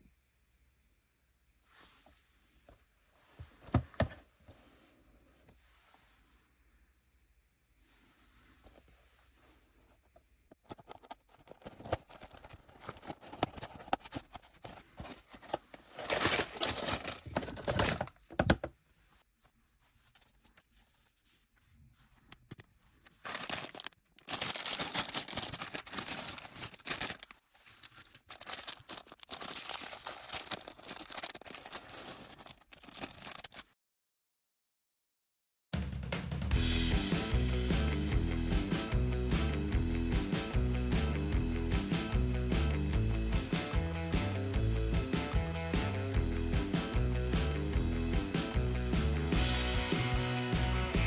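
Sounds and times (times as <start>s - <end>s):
cardboard tearing: 11.2s - 18.3s, 23.0s - 33.6s
plastic bags crinkling: 11.2s - 18.4s, 22.9s - 33.7s.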